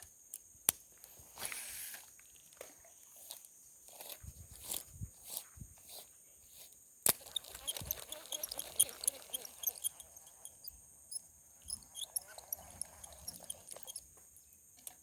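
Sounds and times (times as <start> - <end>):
small ticks and crackles: 7.1 - 15.0.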